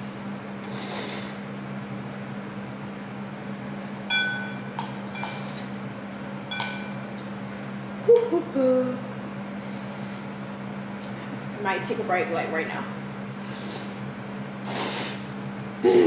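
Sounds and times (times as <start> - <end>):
steady low hum: 0.0 - 16.0
utensil clinking against bowl: 4.1 - 5.4, 6.5 - 7.1
short low vocal sound: 15.8 - 16.0.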